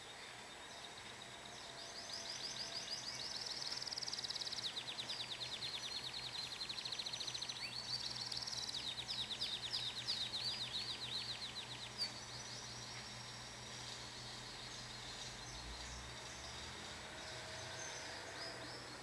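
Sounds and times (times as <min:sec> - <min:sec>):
canary singing trills: 0:00.7 - 0:19.0.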